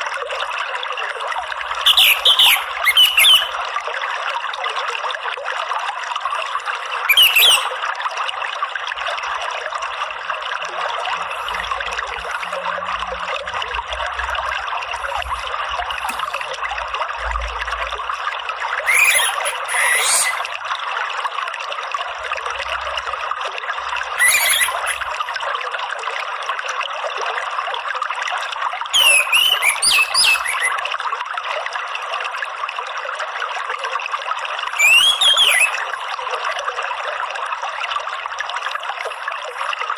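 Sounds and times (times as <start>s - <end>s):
running water: 0.0s - 39.9s
thrush calls: 1.8s - 3.6s, 7.1s - 7.8s, 18.8s - 20.5s, 24.2s - 25.1s, 29.0s - 30.8s, 34.8s - 35.9s.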